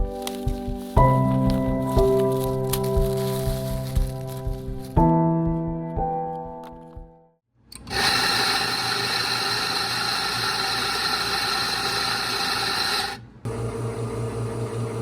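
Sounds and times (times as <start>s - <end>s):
small machine hissing with high tone: 7.9s - 13.2s.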